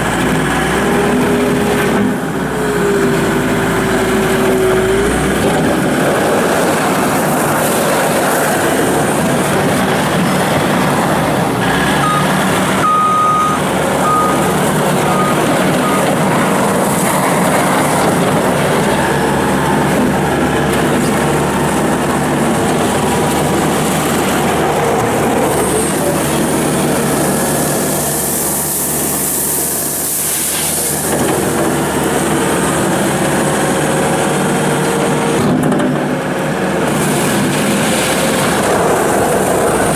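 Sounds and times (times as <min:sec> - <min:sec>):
diesel engine running: 0:00.0 - 0:39.9
short high beeps: 0:12.0 - 0:14.4
hiss: 0:27.4 - 0:31.1.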